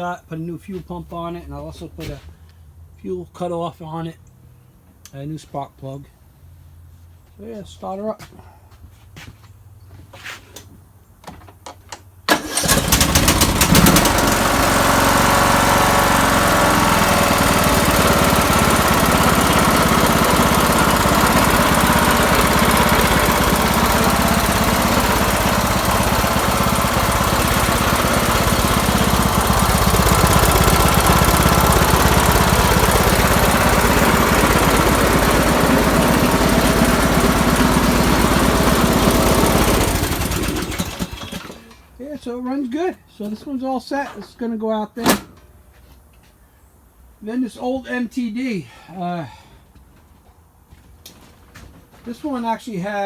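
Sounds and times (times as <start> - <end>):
small engine running: 12.3 - 41.6.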